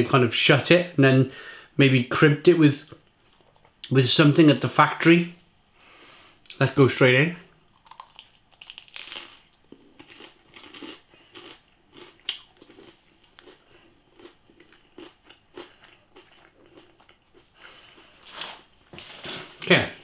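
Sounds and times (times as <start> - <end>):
person chewing crunchy food: 7.7 - 18.7.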